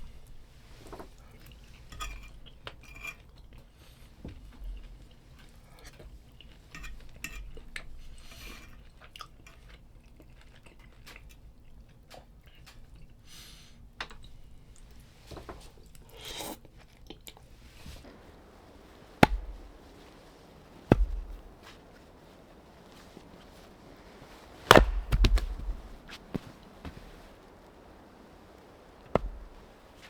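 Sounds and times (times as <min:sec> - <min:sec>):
chewing: 0:04.5 - 0:13.2, 0:15.8 - 0:18.4.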